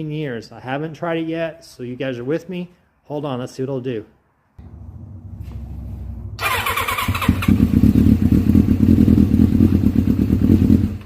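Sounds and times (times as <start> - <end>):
motorcycle engine cranking and running: 4.6 - 11.0.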